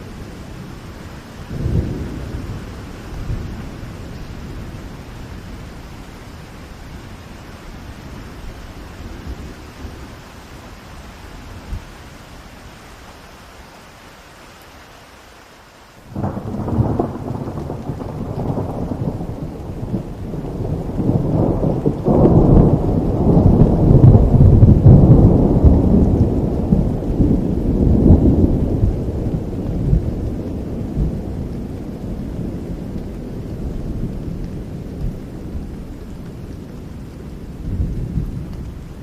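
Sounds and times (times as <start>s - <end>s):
rain falling: 0.0s - 39.0s
rolling thunder: 1.4s - 5.8s, 16.1s - 39.0s.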